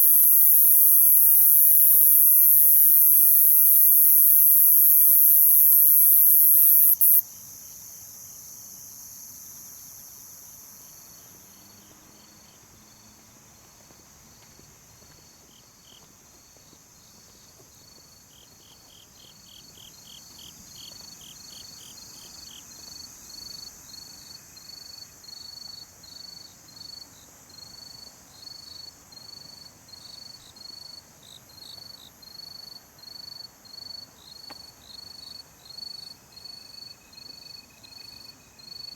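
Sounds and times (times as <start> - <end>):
loud high insect buzz: 0.0 - 7.2
cricket chirping trills: 0.0 - 11.6
evenly spaced cricket chirps: 0.0 - 11.6
faint high insect drone: 0.0 - 38.9.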